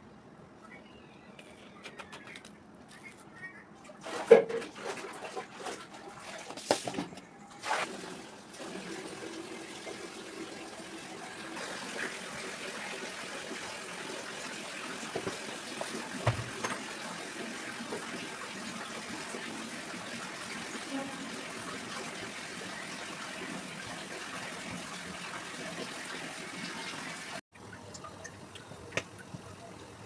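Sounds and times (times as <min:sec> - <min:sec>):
water running from tap: 0:07.6 - 0:30.0.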